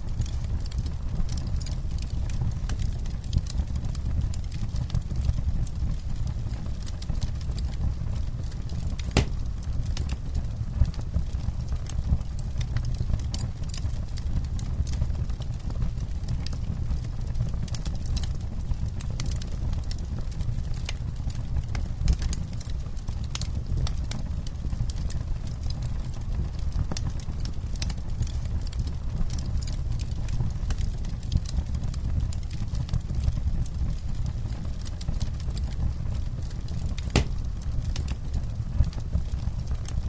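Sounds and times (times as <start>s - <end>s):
campfire crackling and popping: 0.0s - 40.0s.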